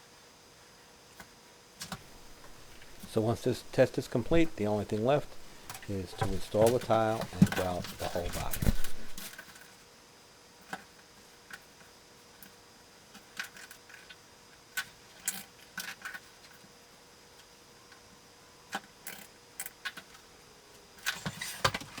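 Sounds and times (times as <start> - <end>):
light clicks and taps: 2.1 - 9.3.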